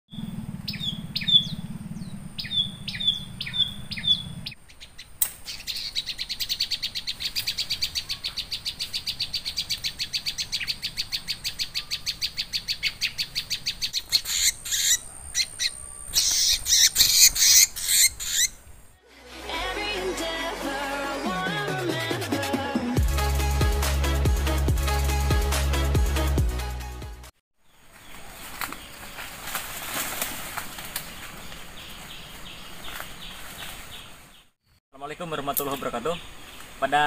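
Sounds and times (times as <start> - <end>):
bird chirping: 0.1 - 19.0
bird wings flapping: 28.1 - 31.7.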